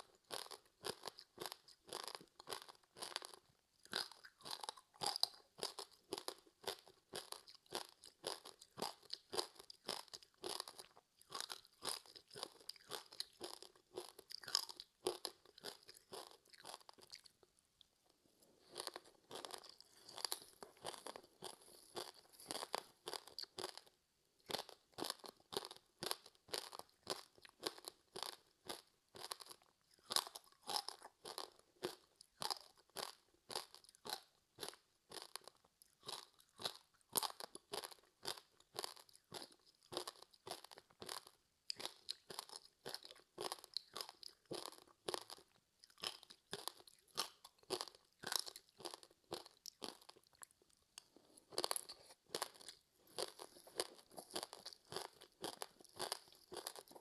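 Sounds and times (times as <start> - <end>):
crunchy chewing: 0.0 - 17.5, 18.6 - 57.0.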